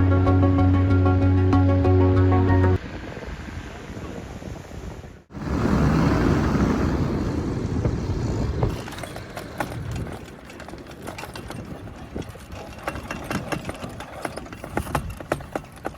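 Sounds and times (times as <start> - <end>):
engine running: 5.3 - 11.4.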